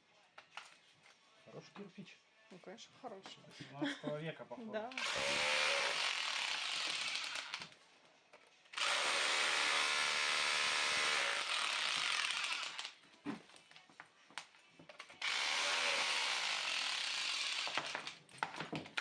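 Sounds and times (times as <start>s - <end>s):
power tool drilling into brick: 5.0s - 7.7s, 8.8s - 13.0s, 15.2s - 18.2s.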